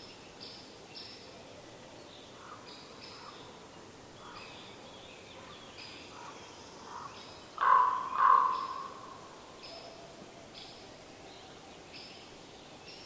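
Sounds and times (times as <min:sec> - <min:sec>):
songbirds chirping: 0:00.0 - 0:13.0
loud bird calls: 0:06.1 - 0:09.9.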